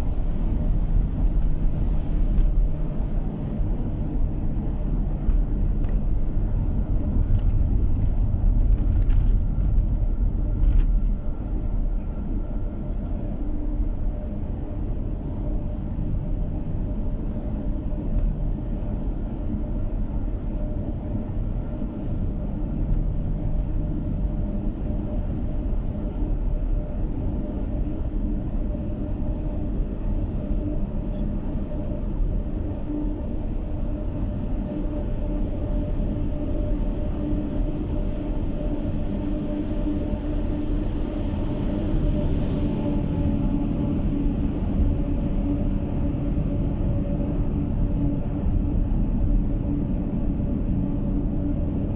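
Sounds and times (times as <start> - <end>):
road and tyre rumble: 0.0 - 39.1
engine hum: 0.0 - 51.9.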